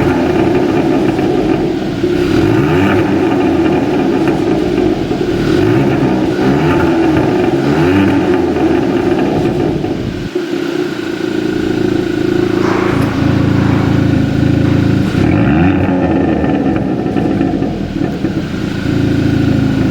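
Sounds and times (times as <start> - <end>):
car exhaust engine revving: 12.0 - 15.8.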